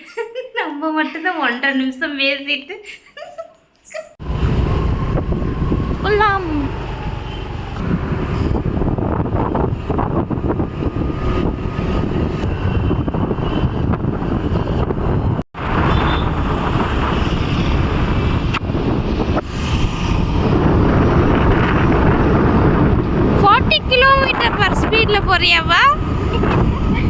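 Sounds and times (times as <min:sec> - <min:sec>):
vehicle road noise: 0:04.2 - 0:27.0
wind rushing over microphone: 0:04.2 - 0:27.0.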